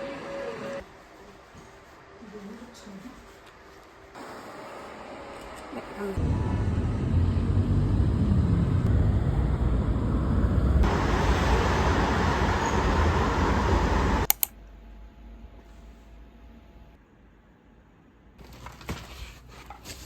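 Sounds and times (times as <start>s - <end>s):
vehicle road noise and rumble: 6.2s - 14.3s.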